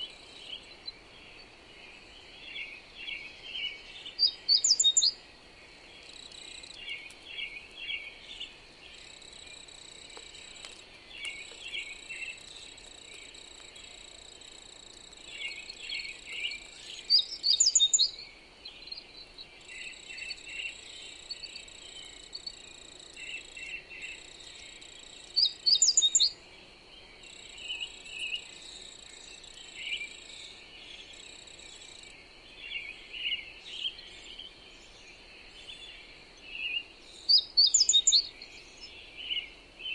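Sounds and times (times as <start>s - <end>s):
soft wind hiss: 0.0s - 39.9s
songbirds chirping and singing: 0.0s - 39.9s
high-pitched insect trill: 19.6s - 26.4s, 37.2s - 38.3s.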